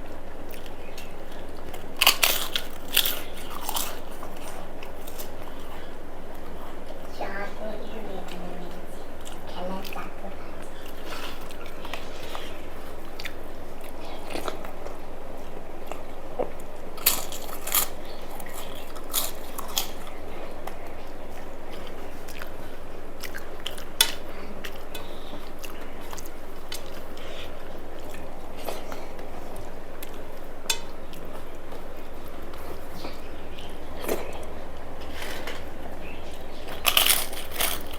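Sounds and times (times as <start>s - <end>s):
person chewing food: 0.0s - 7.4s, 8.3s - 37.9s
sharp crunches: 36.7s - 37.9s.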